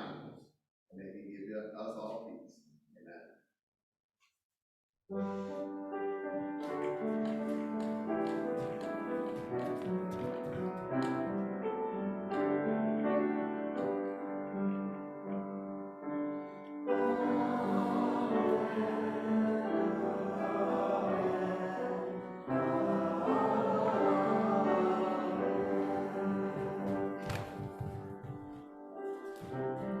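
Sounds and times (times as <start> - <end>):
choir singing church music: 6.2 - 30.0.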